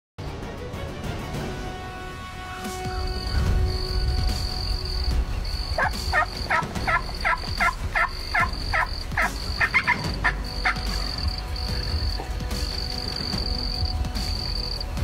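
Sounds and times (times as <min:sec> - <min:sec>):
turkey yelps: 0:05.8 - 0:11.2.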